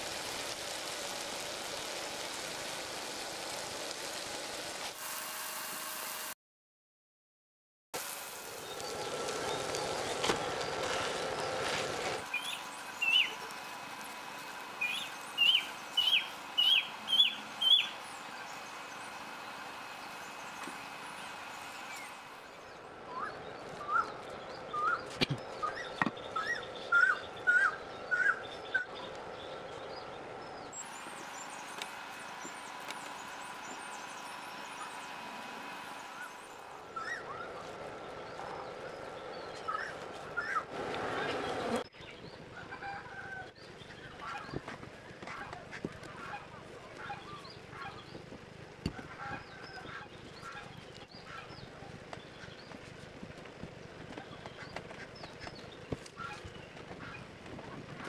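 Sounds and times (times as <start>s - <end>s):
bird chirping: 12.2s - 13.6s, 14.8s - 40.6s.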